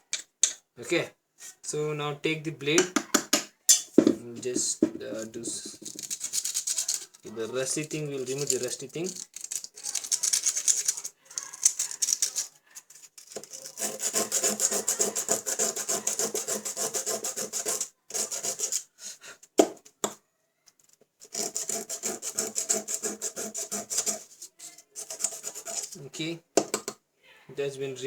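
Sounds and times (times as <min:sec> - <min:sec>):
blade scraping metal: 0:05.1 - 0:18.9, 0:21.2 - 0:26.0.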